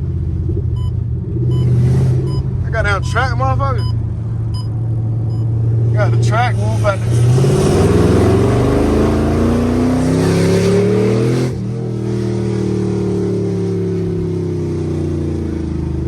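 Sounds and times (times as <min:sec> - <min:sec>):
car engine accelerating hard: 0:03.6 - 0:16.0.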